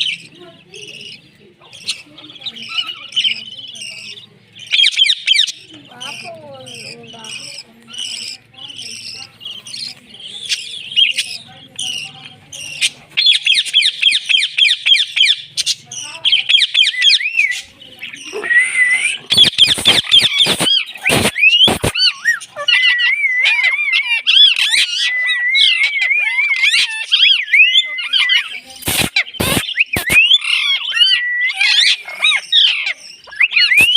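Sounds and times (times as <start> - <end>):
parrot chirping and squawking: 0.0 - 33.9
sharp clicks: 19.3 - 22.0, 28.8 - 30.3.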